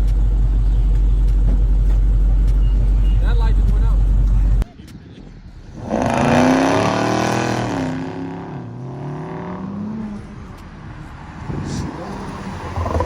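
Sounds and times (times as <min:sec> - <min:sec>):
car accelerating past: 0:05.8 - 0:10.3.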